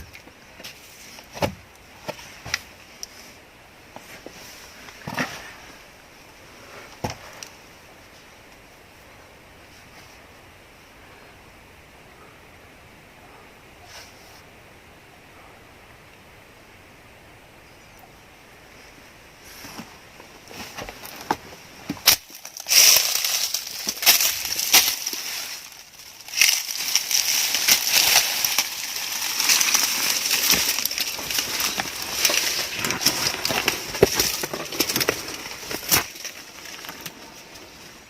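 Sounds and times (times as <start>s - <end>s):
dense crunching and snapping: 0.0s - 3.3s, 19.5s - 38.0s.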